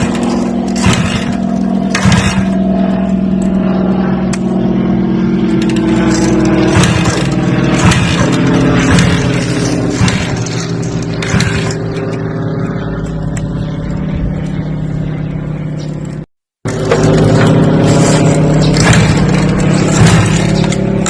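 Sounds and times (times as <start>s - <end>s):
sharp knocks: 0.0s - 2.6s, 5.7s - 11.9s, 18.6s - 20.8s
motor humming: 0.0s - 21.0s.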